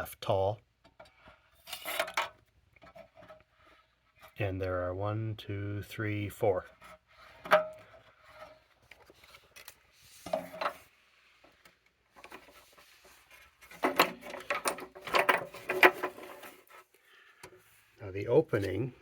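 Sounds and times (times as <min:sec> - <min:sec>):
parts clattering: 0:00.8 - 0:04.4, 0:06.8 - 0:17.7
parts rubbing: 0:06.7 - 0:18.9.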